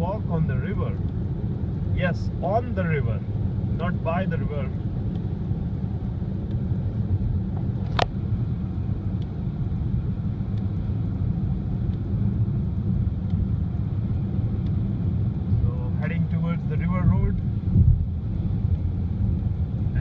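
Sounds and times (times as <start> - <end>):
road and engine rumble in car: 0.0 - 20.0.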